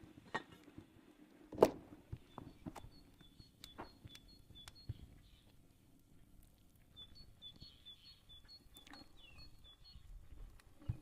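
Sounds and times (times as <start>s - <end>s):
high bird chirps: 2.2s - 5.5s, 6.9s - 10.1s.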